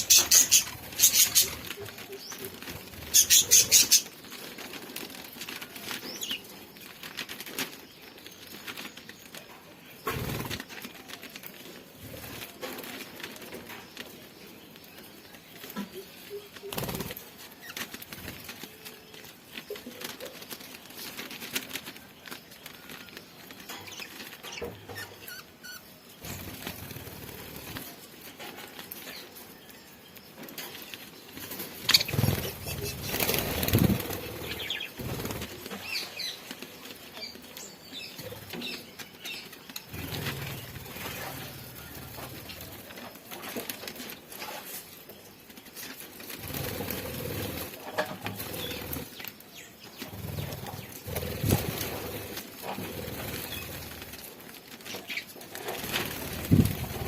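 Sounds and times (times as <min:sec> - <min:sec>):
wing flaps: 0:31.5 - 0:36.6, 0:50.0 - 0:54.3, 0:55.5 - 0:57.0.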